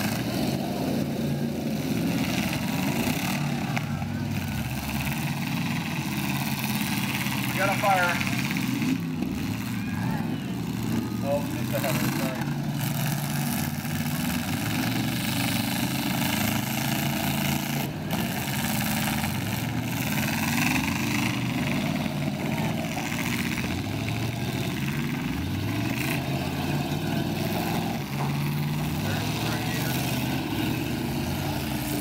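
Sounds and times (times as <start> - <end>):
car engines revving: 0.0 - 32.0.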